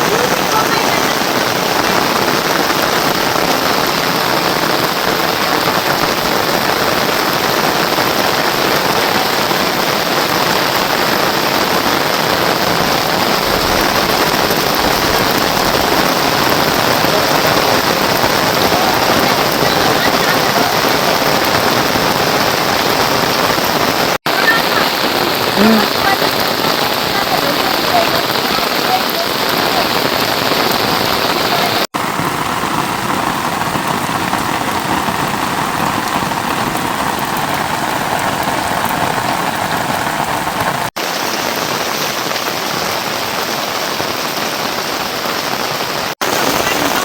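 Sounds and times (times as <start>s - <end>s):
heavy rain falling: 0.0s - 47.0s.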